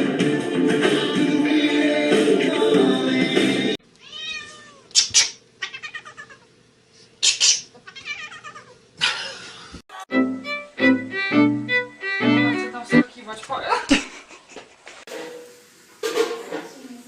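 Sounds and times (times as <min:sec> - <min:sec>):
loud music: 0:00.0 - 0:03.8, 0:10.1 - 0:13.0
cat meowing and yowling: 0:04.0 - 0:04.9, 0:05.6 - 0:06.5, 0:07.9 - 0:08.8.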